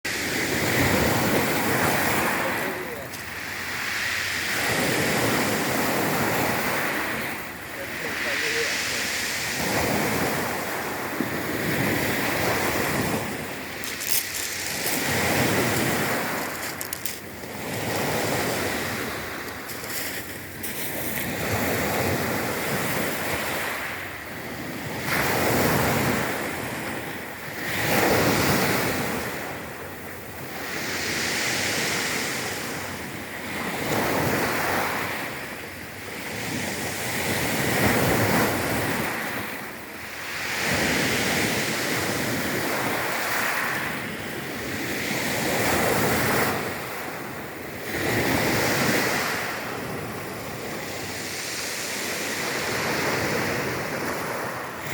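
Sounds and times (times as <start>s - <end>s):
sea waves washing onto shore: 0.1s - 54.9s.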